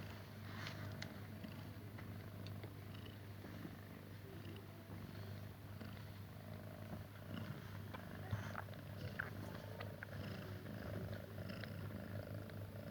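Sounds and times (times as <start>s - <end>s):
faint ticks and rustles: 0.0s - 12.9s
cat purring: 0.4s - 12.9s.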